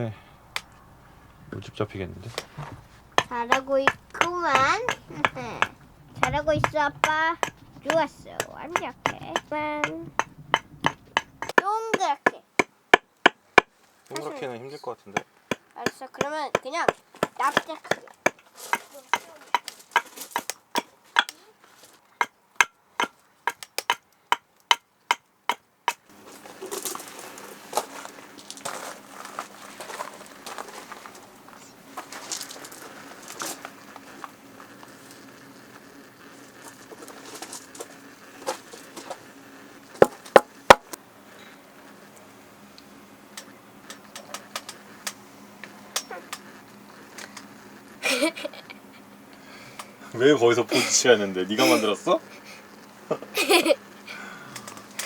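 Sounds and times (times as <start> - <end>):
rustling: 0.4 - 11.6, 26.1 - 39.3
blade scraping wood: 0.8 - 14.4, 15.2 - 21.4
axe chopping wood: 2.6 - 13.7, 15.2 - 21.4, 22.2 - 26.0, 40.0 - 41.0.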